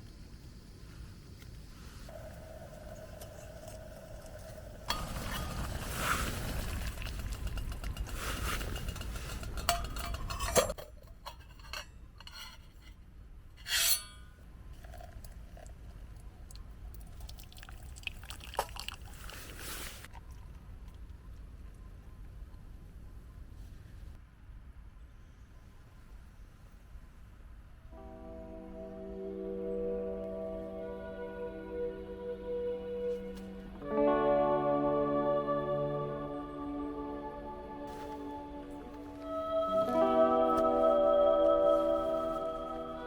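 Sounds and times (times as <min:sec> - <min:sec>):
cups and utensils clinking: 0:04.9 - 0:12.8.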